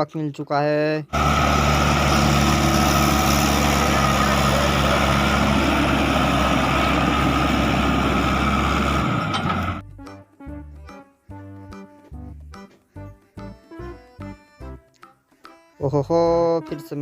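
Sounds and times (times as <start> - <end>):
truck engine idling: 1.1 - 9.8.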